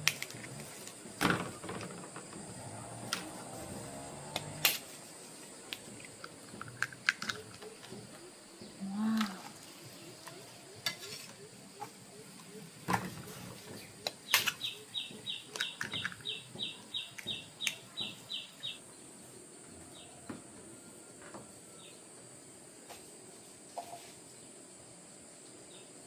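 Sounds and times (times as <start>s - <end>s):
bird chirping: 7.3s - 20.4s.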